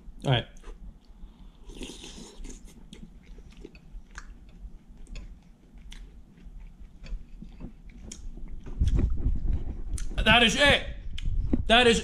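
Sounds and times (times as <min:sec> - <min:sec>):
person chewing: 0:00.5 - 0:09.2, 0:09.8 - 0:10.2.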